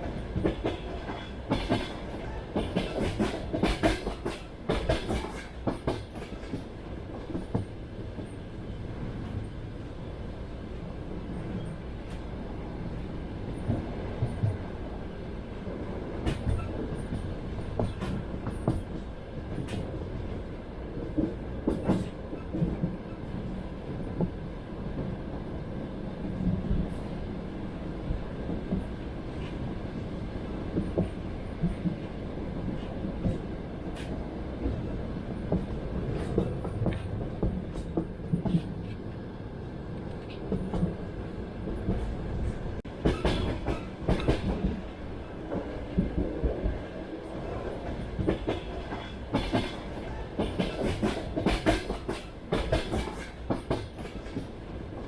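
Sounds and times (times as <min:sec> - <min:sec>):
train wheels clattering on rails: 0:00.0 - 0:08.4, 0:15.6 - 0:25.2, 0:30.4 - 0:39.1, 0:40.0 - 0:55.0
train carriage rumble: 0:00.0 - 0:55.0.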